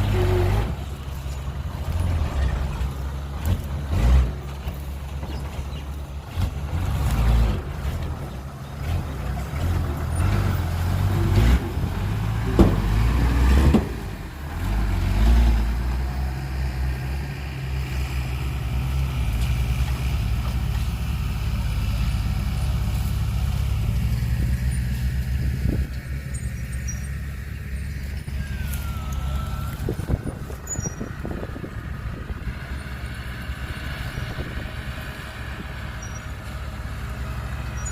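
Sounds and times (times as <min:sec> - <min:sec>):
heavy diesel engine running: 0:00.0 - 0:37.9
metal knocks and clanks: 0:11.0 - 0:14.0.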